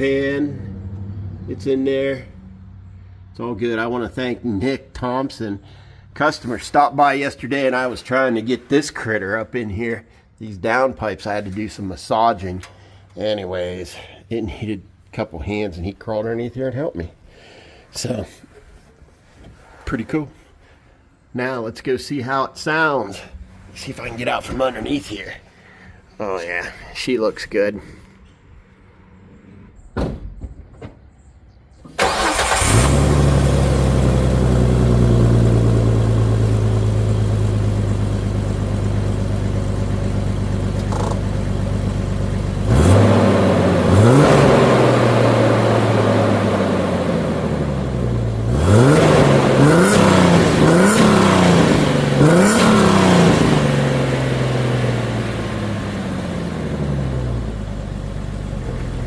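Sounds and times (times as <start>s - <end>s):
car engine idling and revving: 0.0s - 3.2s, 32.0s - 59.0s.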